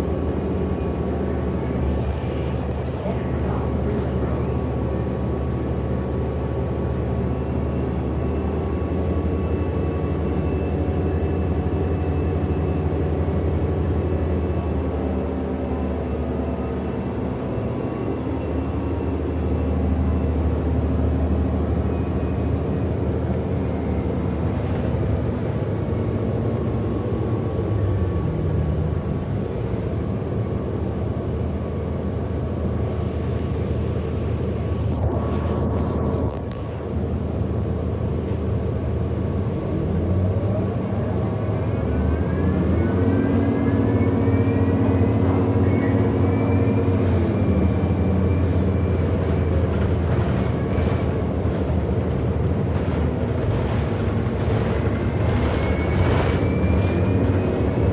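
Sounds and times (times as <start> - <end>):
bus engine drone: 0.0 - 57.9
high motor whine: 34.6 - 37.3.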